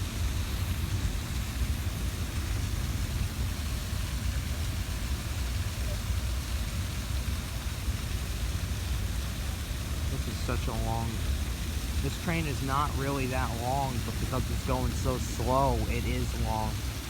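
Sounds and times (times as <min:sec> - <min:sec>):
freight train cars rumbling: 0:08.8 - 0:17.0.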